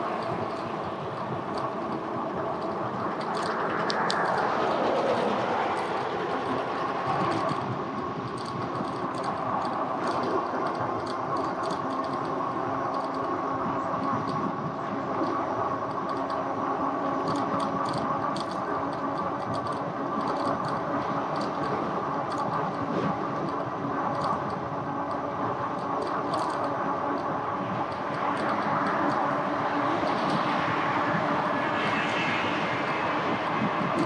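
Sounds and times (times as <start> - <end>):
wind noise: 0.0 - 34.0
light rattling clicks: 0.2 - 6.1, 8.2 - 13.4, 17.2 - 29.4.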